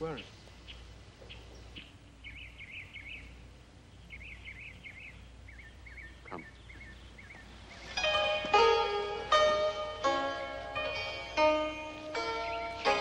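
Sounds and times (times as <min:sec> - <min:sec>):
low steady hum: 0:00.0 - 0:13.0
songbird singing: 0:00.0 - 0:13.0.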